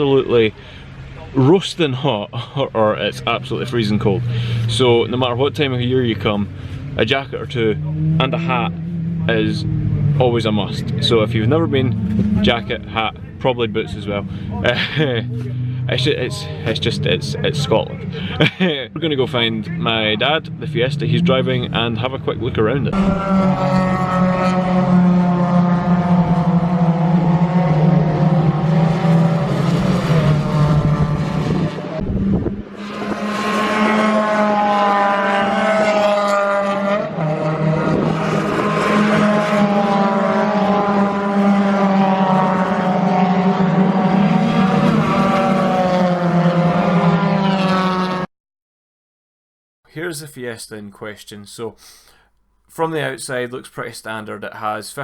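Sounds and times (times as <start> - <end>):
racing car engines revving: 0.0 - 48.3
steady low drone: 22.9 - 27.0.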